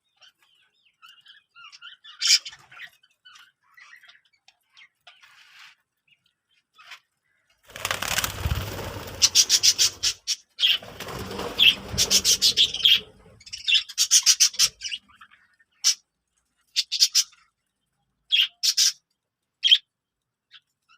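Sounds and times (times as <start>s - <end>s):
birds flapping wings: 7.7s - 13.6s.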